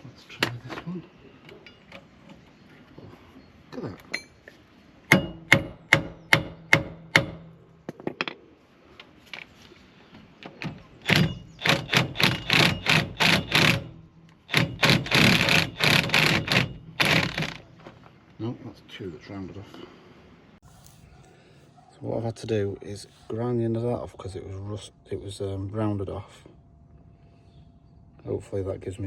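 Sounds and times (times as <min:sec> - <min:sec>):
hammer striking metal: 0:05.1 - 0:07.5
metallic rattling: 0:10.5 - 0:17.8.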